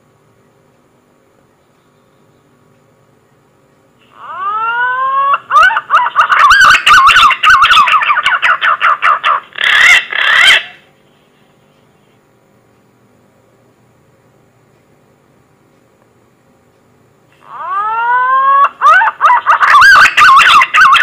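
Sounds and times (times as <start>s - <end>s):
low steady hum: 0.0s - 21.0s
pigeon whistling song: 4.2s - 10.8s, 17.6s - 21.0s.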